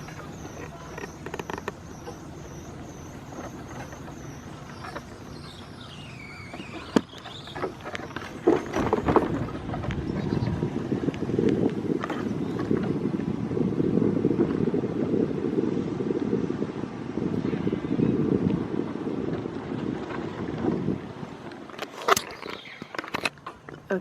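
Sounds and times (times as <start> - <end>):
wheels rumbling on ground: 0.0 - 15.2.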